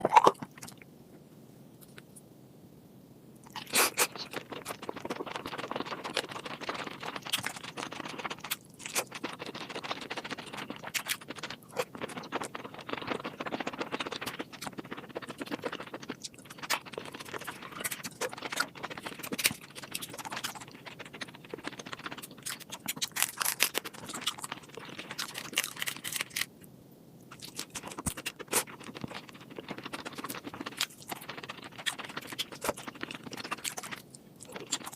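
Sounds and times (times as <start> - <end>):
chewing: 0.0 - 0.8, 3.4 - 26.6, 27.3 - 34.9
seafood shells cracking: 25.2 - 26.5.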